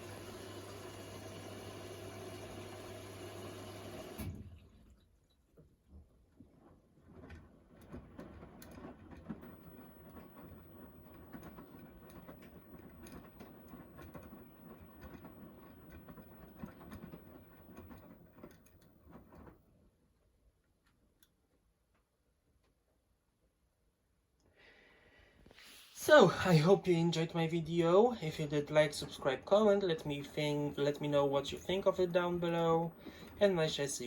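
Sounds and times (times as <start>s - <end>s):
washing machine drum patter and clicking: 5.9s - 19.7s, 26.1s - 34.0s.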